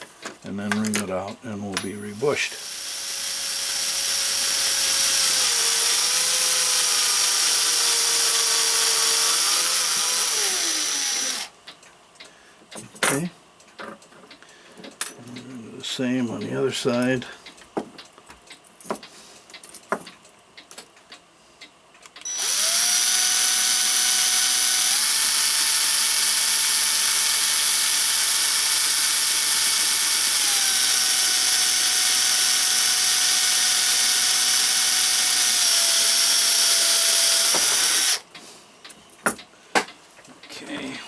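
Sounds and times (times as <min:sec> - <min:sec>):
electric drill whining: 0:02.1 - 0:11.5, 0:22.2 - 0:38.2.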